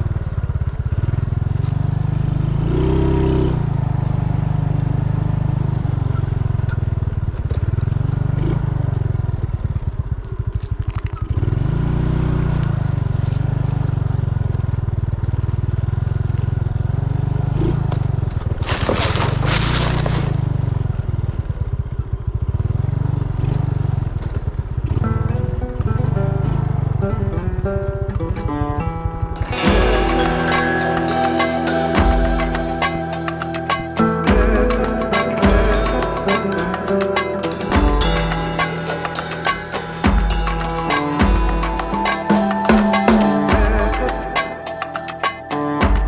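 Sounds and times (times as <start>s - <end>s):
motorcycle engine running: 20.8s - 44.3s
loud hiss: 29.6s - 45.8s.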